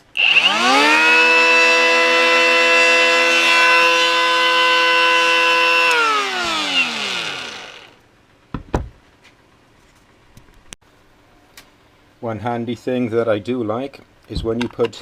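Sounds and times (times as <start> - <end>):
cordless planer whine: 0.0 - 8.0.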